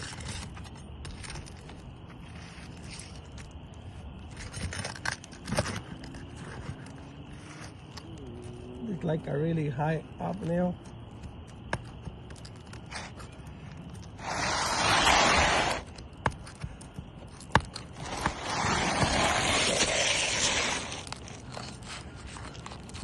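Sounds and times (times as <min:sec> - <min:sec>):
pry tool scraping shingles: 0:14.0 - 0:23.0.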